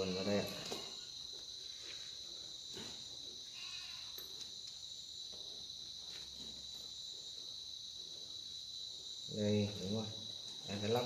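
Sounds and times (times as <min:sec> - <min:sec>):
crickets chirring: 0:00.0 - 0:11.0
goat bleat: 0:03.4 - 0:04.2.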